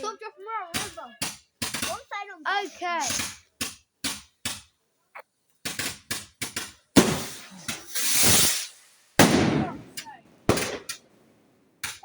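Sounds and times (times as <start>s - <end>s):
firework barrage bangs: 5.7s - 11.0s.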